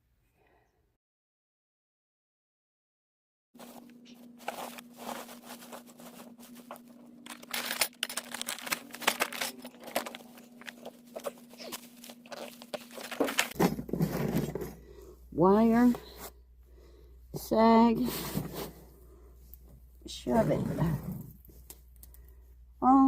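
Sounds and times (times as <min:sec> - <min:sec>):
insulation rustling and crinkling: 0:03.6 - 0:15.0, 0:17.4 - 0:22.6.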